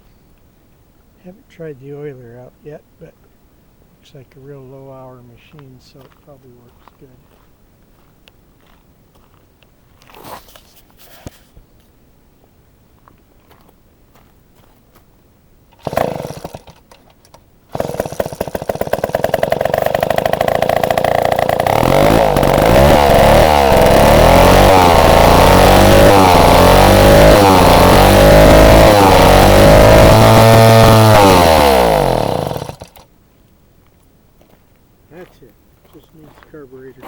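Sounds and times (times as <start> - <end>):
man talking: 1.2 - 3.2, 4.0 - 7.3, 35.1 - 37.0
chainsaw engine pull-started: 15.7 - 33.1.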